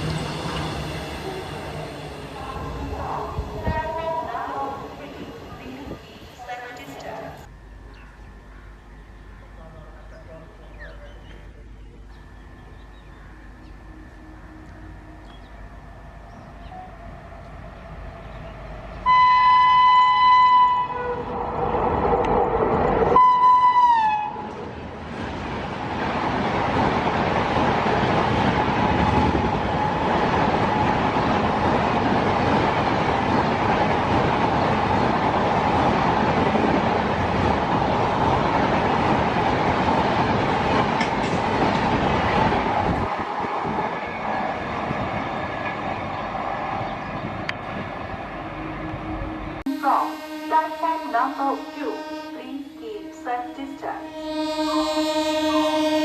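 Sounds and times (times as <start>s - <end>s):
train passing at speed: 0.0s - 56.0s
train horn blasts: 19.0s - 21.4s, 23.1s - 24.7s, 48.6s - 56.0s.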